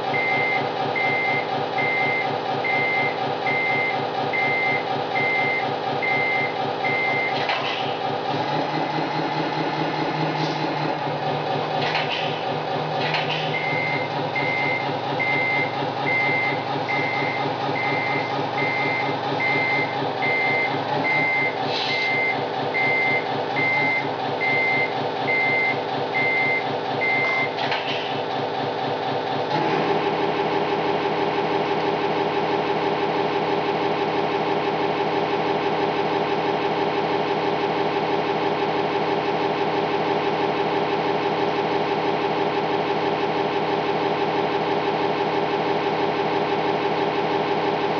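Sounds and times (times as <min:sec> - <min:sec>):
diesel engine sound: 0:00.0 - 0:47.9
reversing beeper: 0:00.1 - 0:07.4, 0:13.5 - 0:27.6.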